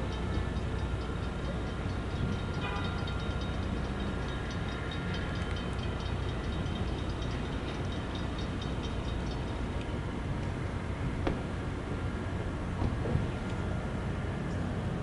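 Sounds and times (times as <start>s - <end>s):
diesel locomotive rumbling: 0.0s - 15.0s.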